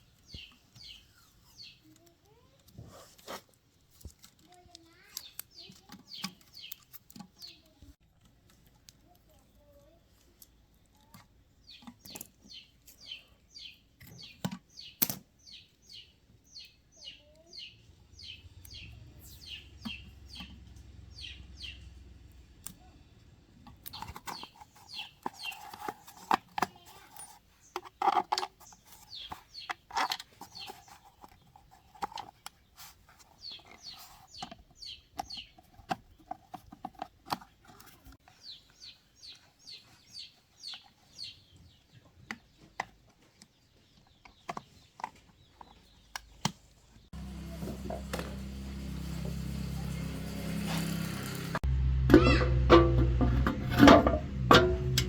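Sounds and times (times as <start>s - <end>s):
birds chirping: 0.0s - 2.5s, 4.8s - 7.9s, 11.0s - 22.1s, 23.8s - 36.4s, 37.9s - 55.0s
low hum: 47.2s - 55.0s.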